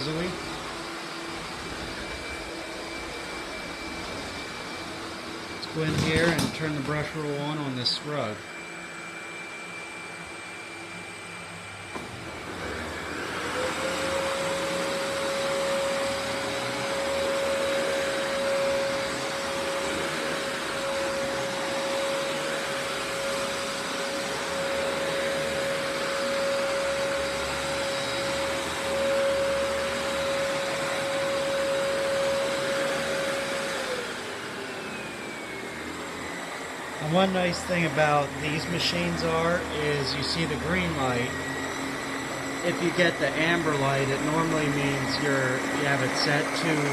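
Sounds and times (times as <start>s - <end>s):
upright vacuum running: 0.0s - 46.9s
brush roll hum: 35.8s - 46.9s.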